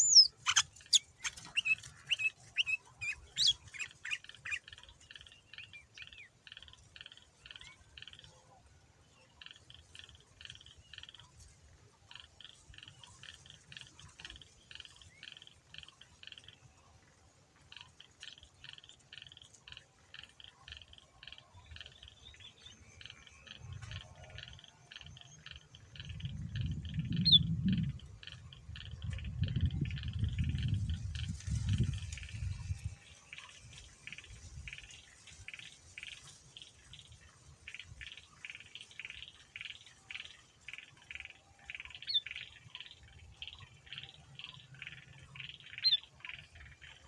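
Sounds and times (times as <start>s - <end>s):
bulbul singing: 0.0s - 4.6s.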